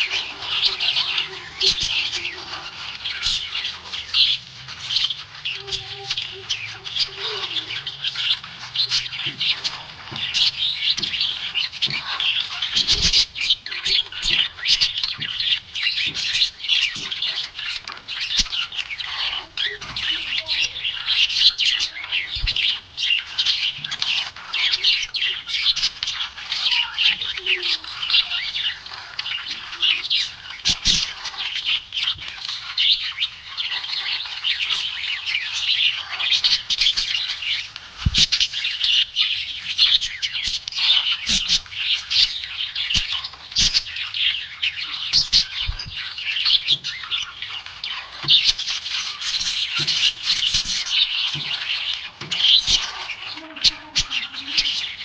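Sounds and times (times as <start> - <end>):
budgie squawks: 0.0 - 15.5
budgies chirping: 0.0 - 55.0.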